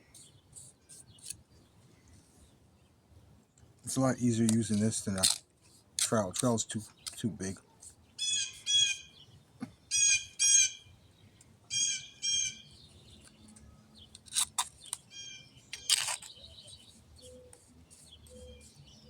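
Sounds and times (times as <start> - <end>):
bird harsh calls: 6.9 - 10.9, 11.7 - 13.4, 14.0 - 19.0.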